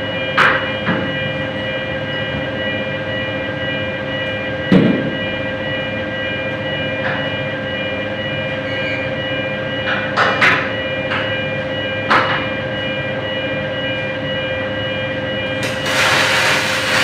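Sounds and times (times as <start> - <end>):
welding arc buzzing: 15.6 - 17.0.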